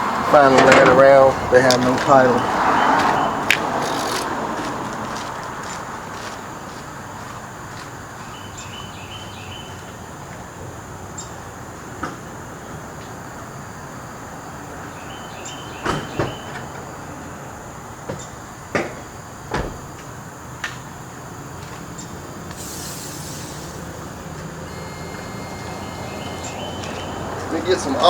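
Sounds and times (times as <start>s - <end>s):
outdoor background noise: 0.0s - 28.0s
brief hiss: 22.5s - 24.2s.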